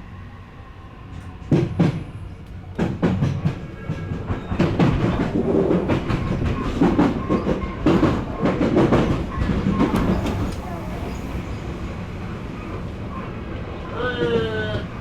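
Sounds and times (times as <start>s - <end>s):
train wheels clattering over joints: 2.8s - 11.4s.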